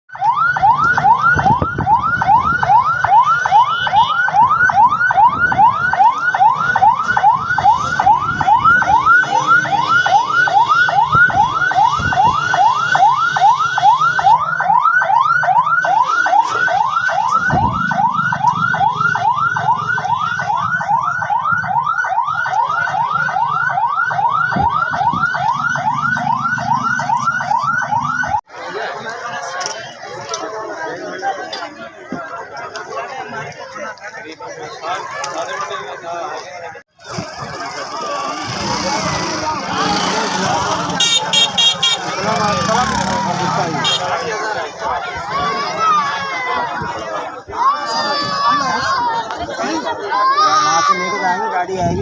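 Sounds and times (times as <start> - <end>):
electronic siren sweeping: 0.1 - 28.5, 37.0 - 44.3.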